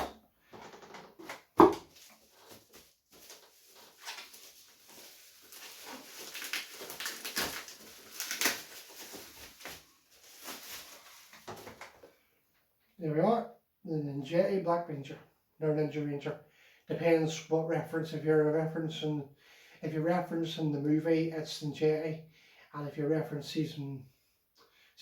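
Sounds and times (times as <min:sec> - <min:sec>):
cardboard and plastic rustling: 0:00.5 - 0:12.2.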